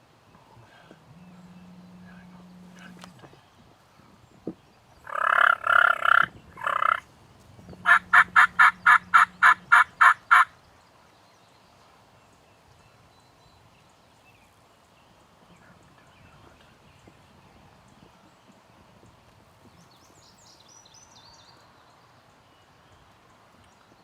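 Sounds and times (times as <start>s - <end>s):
turkey gobbling: 5.1s - 7.0s, 7.8s - 10.5s
turkey yelps: 5.1s - 7.0s, 7.8s - 10.5s.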